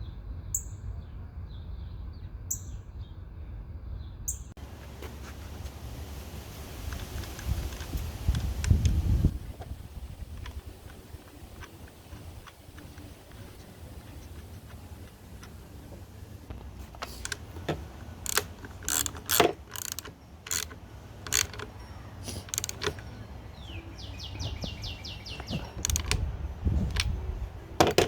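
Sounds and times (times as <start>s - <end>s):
hand tools clicking and clinking: 9.6s - 23.7s, 25.3s - 28.0s.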